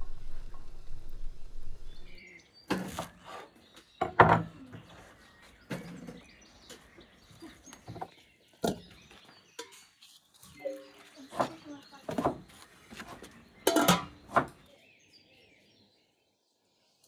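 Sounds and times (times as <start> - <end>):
faint birds chirping: 0.1 - 17.0.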